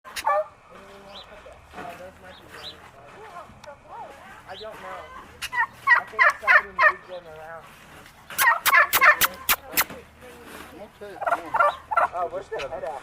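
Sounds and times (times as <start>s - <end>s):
turkeys gobbling: 0.1s - 1.3s, 4.5s - 7.4s, 8.3s - 9.9s, 11.2s - 12.7s.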